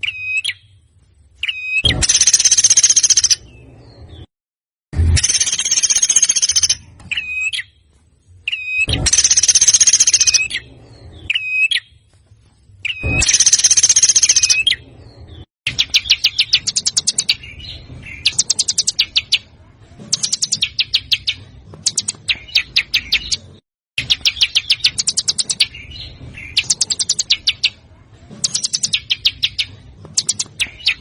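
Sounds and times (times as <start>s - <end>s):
songbird harsh rapid notes: 1.7s - 3.5s, 5.0s - 7.6s, 8.6s - 10.7s, 12.9s - 14.8s.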